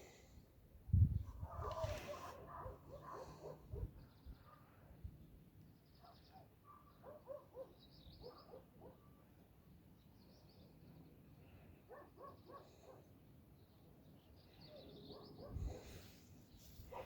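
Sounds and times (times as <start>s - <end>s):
small birds chirping: 1.0s - 9.2s, 9.9s - 17.0s
faint dog barking: 1.3s - 4.8s, 6.0s - 9.1s, 11.8s - 13.2s, 14.6s - 17.0s.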